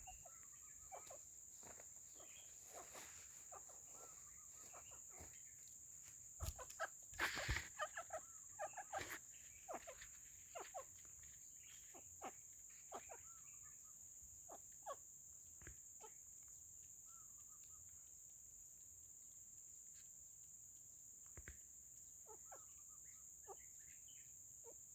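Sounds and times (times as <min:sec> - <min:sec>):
hen clucking: 0:00.0 - 0:01.2, 0:06.4 - 0:10.9
insects humming: 0:00.0 - 0:24.9.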